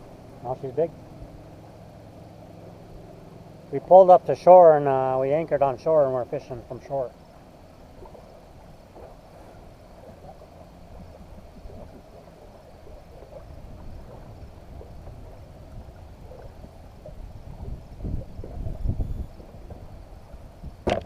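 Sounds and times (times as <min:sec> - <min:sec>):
water around boat: 0:00.0 - 0:21.0
wind on microphone: 0:08.0 - 0:21.0.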